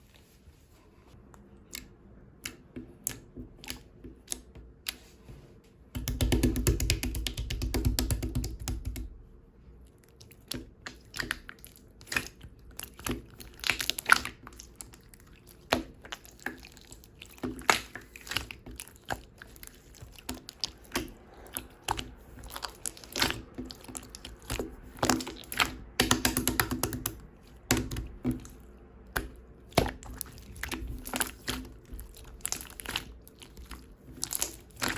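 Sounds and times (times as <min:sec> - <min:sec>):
hands squishing slime: 0:00.0 - 0:34.9.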